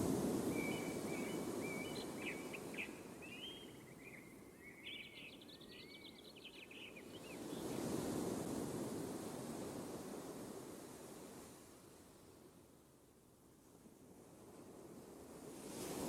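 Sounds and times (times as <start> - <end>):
birds chirping and calling: 0.6 - 4.1.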